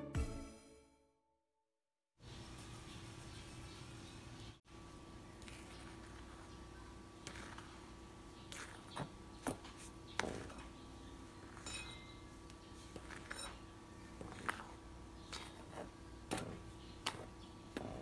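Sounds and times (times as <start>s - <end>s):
spatula stirring flour in bowl: 5.4s - 18.0s
spatula clinking on glass: 11.4s - 12.3s.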